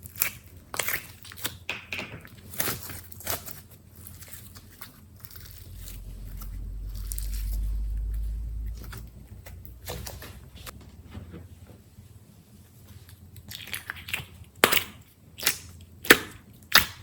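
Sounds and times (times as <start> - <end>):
low rumble: 4.6 - 11.3.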